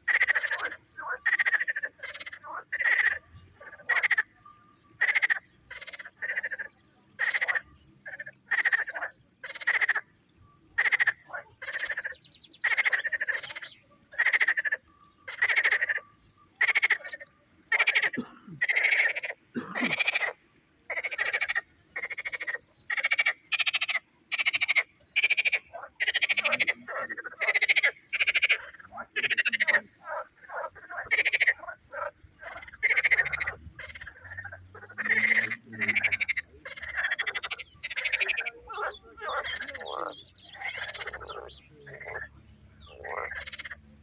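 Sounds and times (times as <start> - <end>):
frogs croaking: 0.0 - 44.0.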